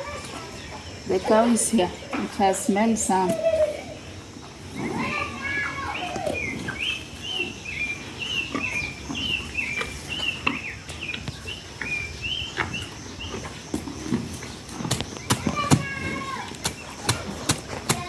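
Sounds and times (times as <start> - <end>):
bird chirping: 4.8 - 18.0.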